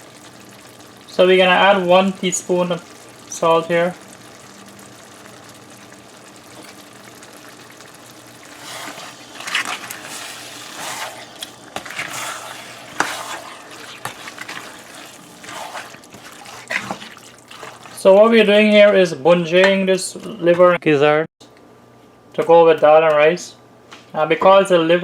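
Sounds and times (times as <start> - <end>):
meat sizzling in a pot: 0.0 - 18.8
spoon stirring and scraping: 8.5 - 18.1.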